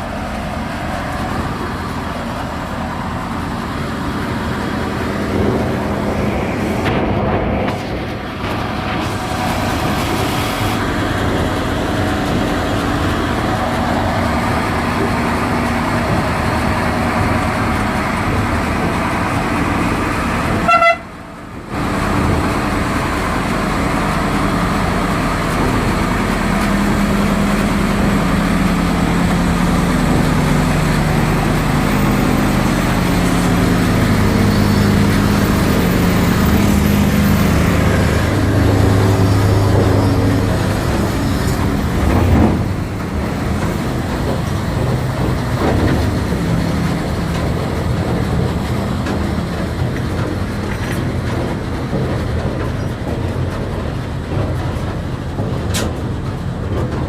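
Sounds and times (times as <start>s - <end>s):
short horn toot: 20.6s - 21.1s.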